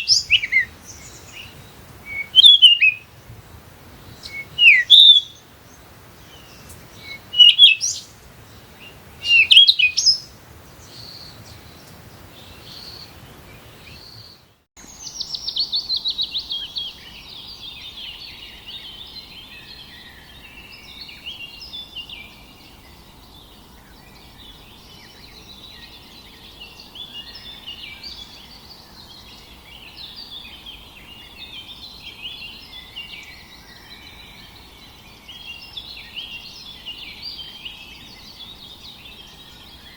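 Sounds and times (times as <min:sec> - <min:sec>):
chorus of birds chirping: 0:00.0 - 0:39.9
loud sweeping bird calls: 0:00.0 - 0:39.9
fast loud bird trill: 0:02.1 - 0:03.0, 0:04.2 - 0:05.4.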